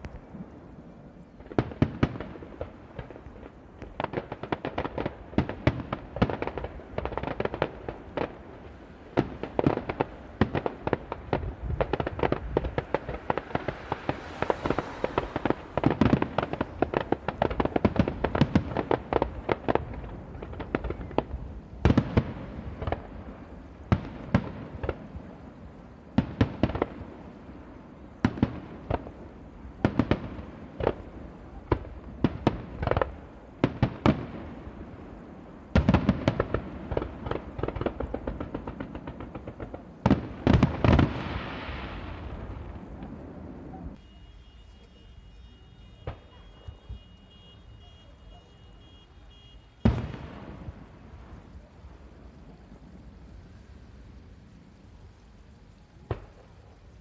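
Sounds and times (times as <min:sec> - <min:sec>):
firework crackles: 0:00.0 - 0:57.0
firework shells bursting: 0:09.1 - 0:25.5.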